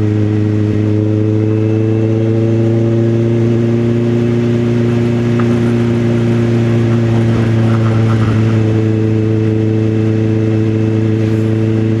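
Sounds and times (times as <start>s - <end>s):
motorcycle engine running: 3.2s - 12.0s.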